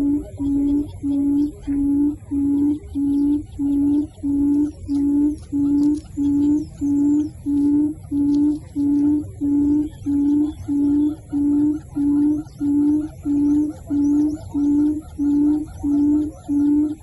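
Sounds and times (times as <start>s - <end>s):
high bird chirps: 0.0s - 17.0s
low hooting bird call: 0.0s - 17.0s.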